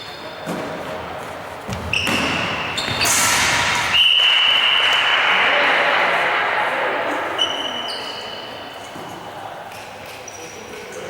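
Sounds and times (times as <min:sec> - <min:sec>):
sports hall noise: 0:00.0 - 0:11.0
high-pitched whistle: 0:01.9 - 0:05.4, 0:07.4 - 0:08.8.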